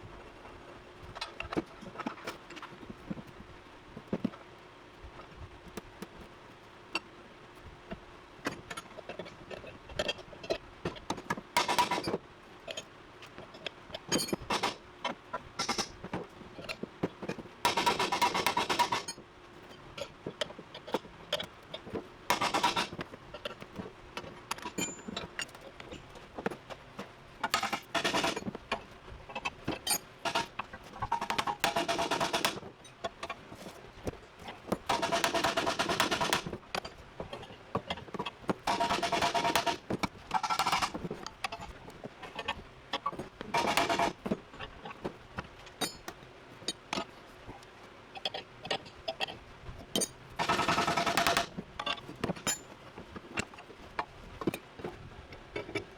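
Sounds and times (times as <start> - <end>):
clinks and knocks of metal tools: 13.5 - 14.8, 24.2 - 26.2, 29.4 - 33.4, 45.6 - 47.1, 49.9 - 53.6.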